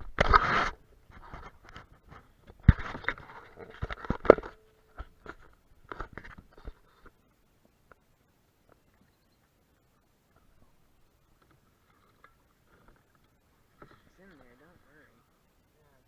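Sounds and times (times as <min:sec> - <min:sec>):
handling knocks and scrapes: 0:00.0 - 0:07.2.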